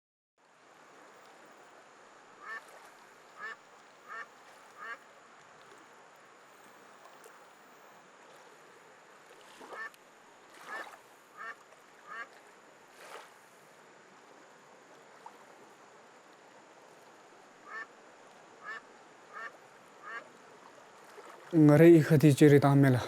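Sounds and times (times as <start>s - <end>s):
background hiss: 0.4s - 23.0s
bird calling: 2.4s - 2.6s, 3.4s - 5.0s, 10.6s - 12.3s, 17.6s - 17.9s, 18.6s - 20.3s.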